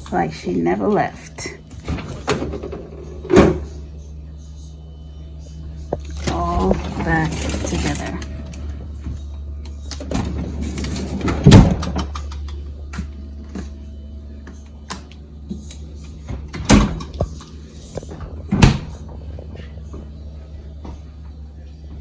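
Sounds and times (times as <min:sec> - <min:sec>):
low hum: 0:00.0 - 0:22.0
door shutting thuds: 0:01.8 - 0:03.8, 0:10.0 - 0:13.1, 0:16.1 - 0:20.1.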